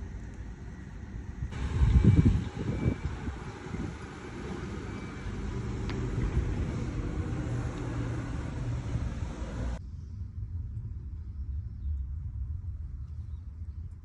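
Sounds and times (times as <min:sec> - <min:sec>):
low vehicle rumble: 0:00.0 - 0:13.8.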